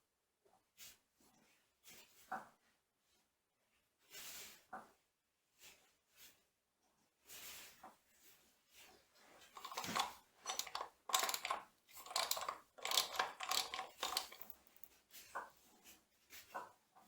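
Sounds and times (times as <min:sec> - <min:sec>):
metal parts clinking and scraping: 0:09.6 - 0:14.9.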